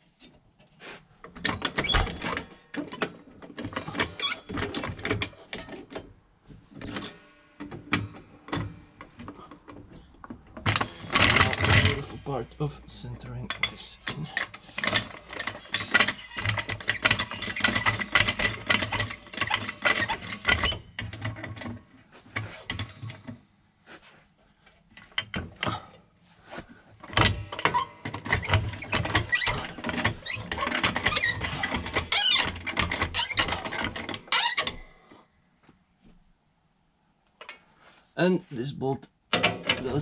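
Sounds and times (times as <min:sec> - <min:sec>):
hand tools clicking and rattling: 0:06.8 - 0:21.8, 0:27.0 - 0:34.8.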